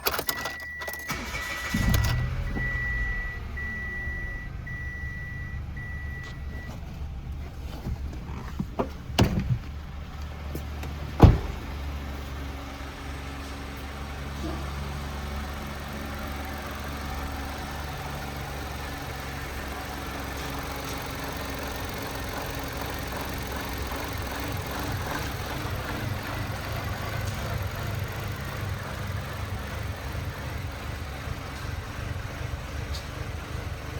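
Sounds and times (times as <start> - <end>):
car engine starting and idling: 0.0 - 33.9.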